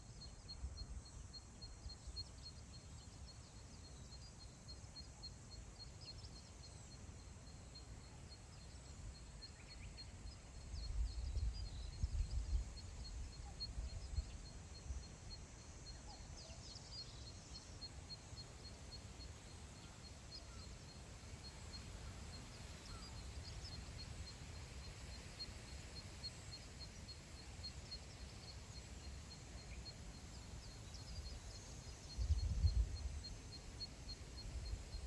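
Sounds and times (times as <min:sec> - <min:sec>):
wind rumbling on microphone: 0:10.7 - 0:14.5, 0:32.0 - 0:33.3.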